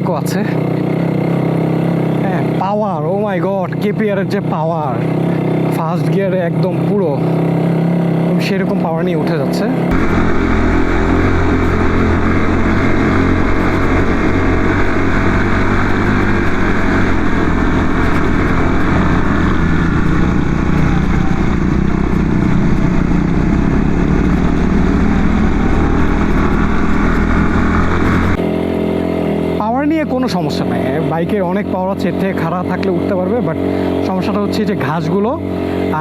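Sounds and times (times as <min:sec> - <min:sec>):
motorcycle engine climbing hill: 0:00.0 - 0:36.0.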